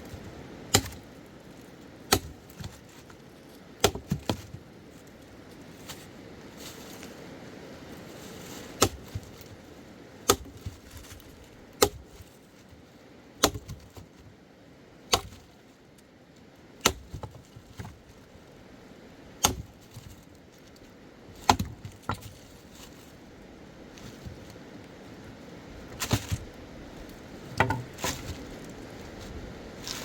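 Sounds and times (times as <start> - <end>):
axe chopping wood: 0.7 - 1.1, 2.1 - 2.8, 3.8 - 4.6, 8.8 - 9.3, 10.2 - 10.9, 11.8 - 12.2, 13.4 - 14.1, 15.1 - 15.5, 16.8 - 18.0, 19.4 - 20.0, 21.4 - 22.2, 27.6 - 28.4.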